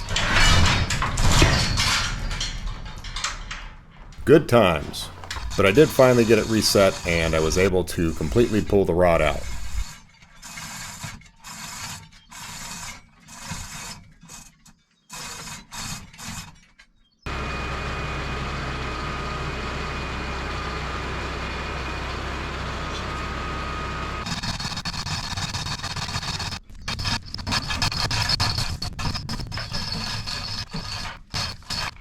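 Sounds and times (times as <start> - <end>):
clicks and scraping: 0.0 - 16.9, 24.2 - 32.0
mechanical hum with high whine: 4.2 - 9.9.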